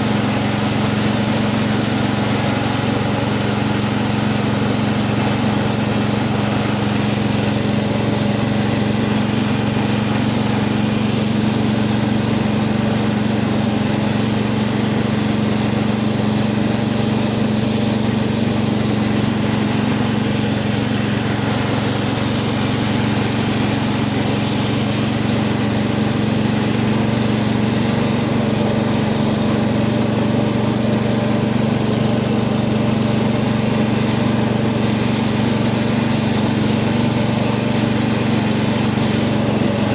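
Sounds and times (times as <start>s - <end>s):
tractor engine running steadily: 0.0s - 39.9s.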